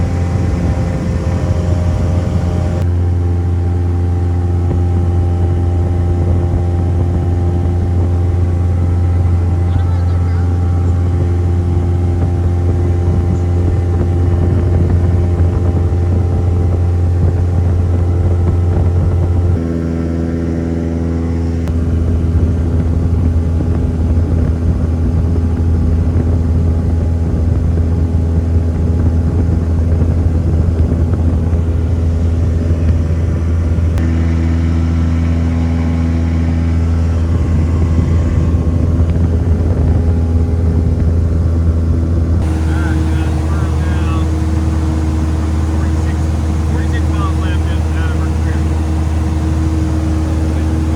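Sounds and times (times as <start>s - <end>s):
truck engine droning: 0.0s - 50.9s.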